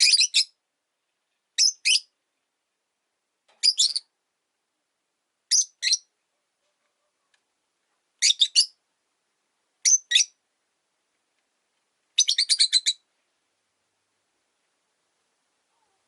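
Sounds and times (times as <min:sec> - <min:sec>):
lovebirds chirping: 0:00.0 - 0:02.4, 0:03.5 - 0:04.2, 0:05.4 - 0:07.4, 0:08.2 - 0:08.8, 0:09.8 - 0:10.4, 0:12.1 - 0:13.1.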